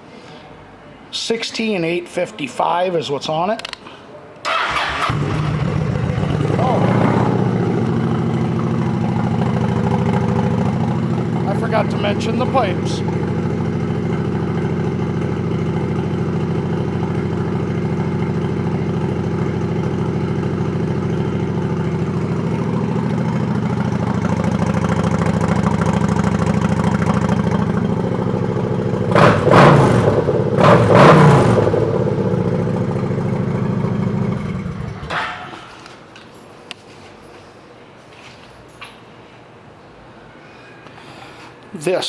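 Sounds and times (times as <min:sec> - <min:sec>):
motorcycle engine idling and revving: 0:04.5 - 0:35.6.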